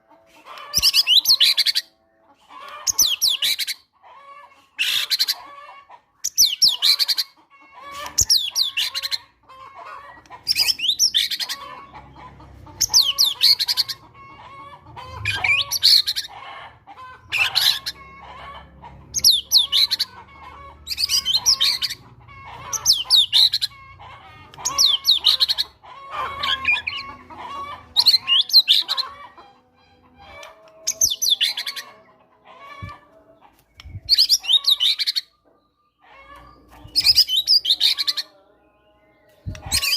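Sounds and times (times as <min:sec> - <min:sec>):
faint chattering bird calls: 0:00.1 - 0:39.9.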